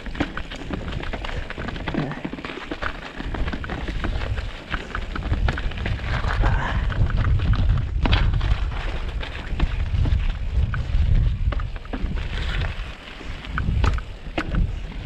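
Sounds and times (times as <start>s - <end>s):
mountain bike rattling and knocking: 0.0s - 15.0s
wind buffeting microphone: 3.2s - 15.0s.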